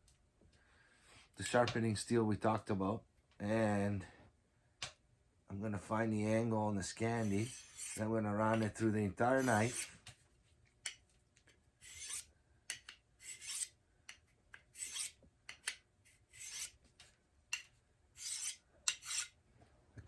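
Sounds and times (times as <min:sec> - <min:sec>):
knife scraping on sharpening steel: 0:07.2 - 0:08.0, 0:09.3 - 0:10.0, 0:11.8 - 0:13.7, 0:14.7 - 0:16.8, 0:17.5 - 0:19.4.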